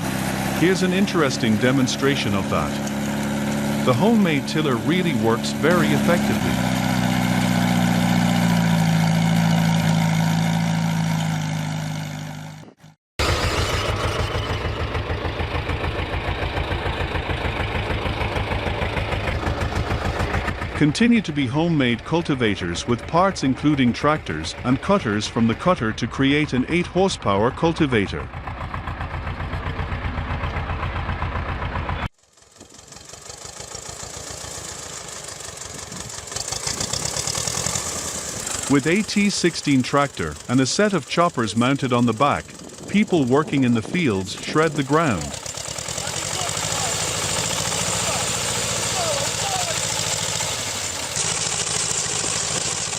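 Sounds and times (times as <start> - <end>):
small tiller engine running: 0.0 - 25.4, 28.3 - 52.9
machine engine hissing: 32.3 - 52.9.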